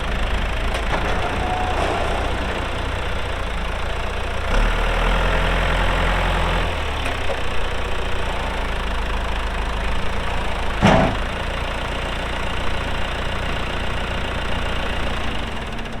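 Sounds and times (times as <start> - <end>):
tractor diesel engine running: 0.0 - 16.0
sharp clunk: 10.8 - 11.3.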